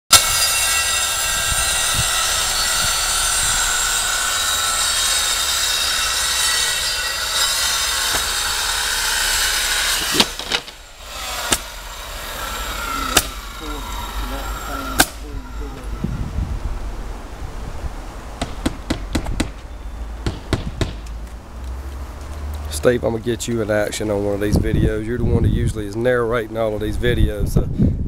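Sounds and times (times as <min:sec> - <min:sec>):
power tool whining: 0:00.1 - 0:16.2
sharp knocks: 0:09.9 - 0:10.8, 0:11.4 - 0:11.8, 0:13.1 - 0:13.6, 0:15.0 - 0:15.9, 0:18.4 - 0:21.2.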